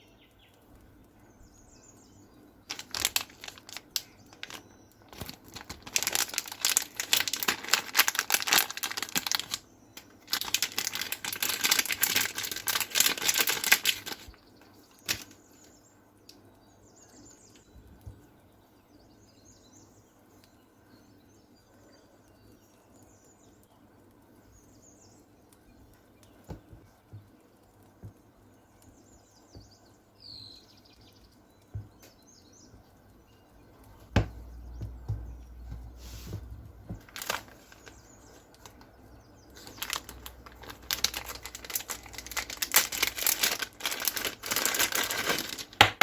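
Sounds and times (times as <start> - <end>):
faint bird chirps: 0.0 - 7.4, 8.2 - 45.2
plastic packaging crinkling and tearing: 2.7 - 15.7, 36.8 - 38.9, 39.5 - 46.0.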